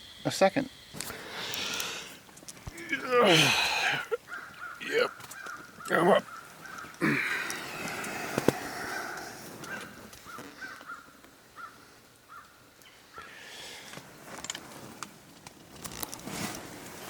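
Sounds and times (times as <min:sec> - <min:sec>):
bird harsh calls: 0:01.3 - 0:13.4
rustling: 0:13.8 - 0:17.0.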